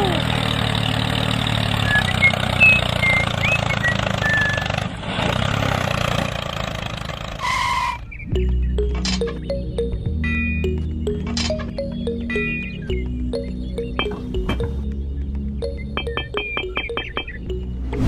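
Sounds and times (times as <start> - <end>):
small tractor engine running: 0.0 - 10.1.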